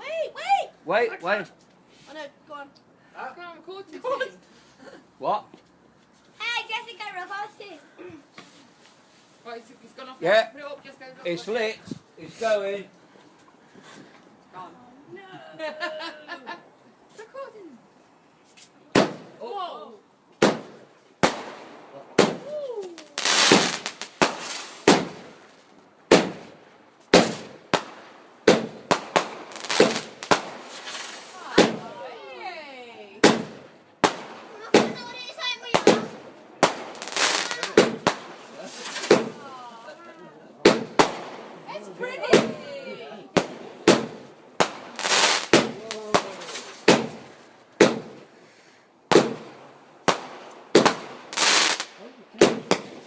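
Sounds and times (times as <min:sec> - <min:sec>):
fireworks bangs with crackling: 0:18.9 - 0:19.5, 0:20.4 - 0:32.2, 0:33.2 - 0:39.6, 0:40.6 - 0:48.4, 0:49.1 - 0:53.0.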